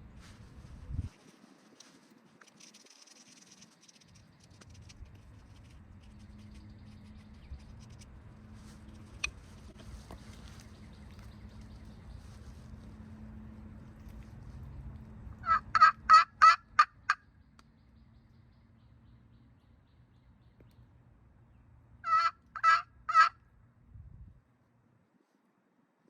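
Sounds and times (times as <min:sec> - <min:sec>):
turkey call yelps: 0:15.4 - 0:17.2, 0:22.0 - 0:23.4.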